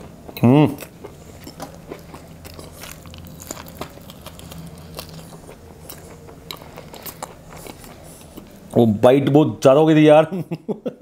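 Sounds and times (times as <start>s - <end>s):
person chewing: 0.0s - 8.8s.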